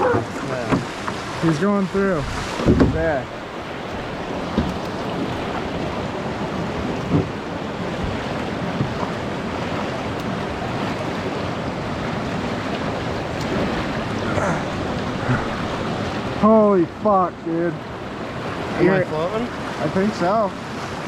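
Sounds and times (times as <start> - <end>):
floodwater rushing through culvert: 0.0 - 21.0.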